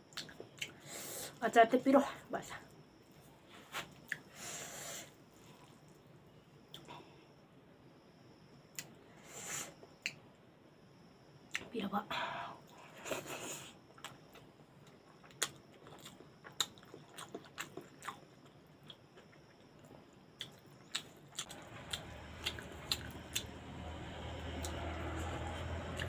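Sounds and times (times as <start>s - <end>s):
person chewing food: 13.1s - 23.6s
steady low hum: 18.0s - 26.0s.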